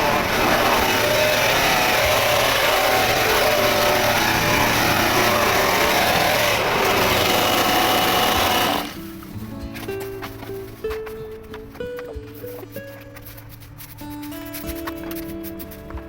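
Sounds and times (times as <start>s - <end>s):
petrol power tool running: 0.0s - 9.3s.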